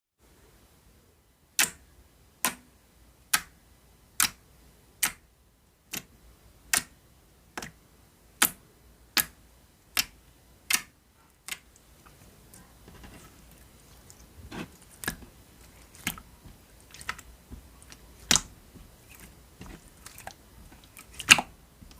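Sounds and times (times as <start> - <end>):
water slime clicking: 1.6 - 1.8, 3.3 - 3.5, 5.9 - 6.1, 6.7 - 6.9, 9.2 - 11.8, 14.8 - 21.9.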